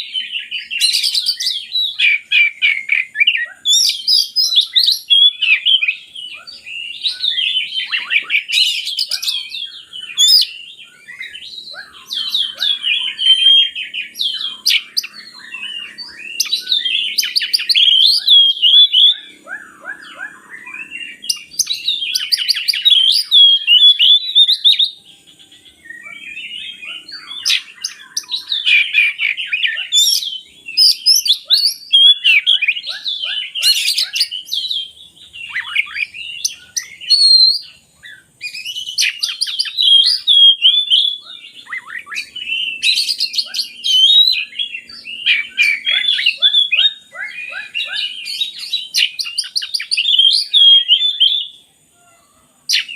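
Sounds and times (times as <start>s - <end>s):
bird singing whistles and trills: 0.0s - 52.9s.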